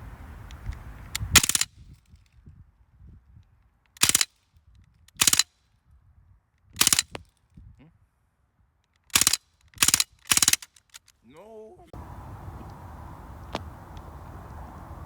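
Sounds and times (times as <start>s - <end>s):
bb gun rapid-fire bursts: 4.0s - 4.3s, 5.2s - 5.4s, 6.8s - 7.1s, 9.1s - 10.7s.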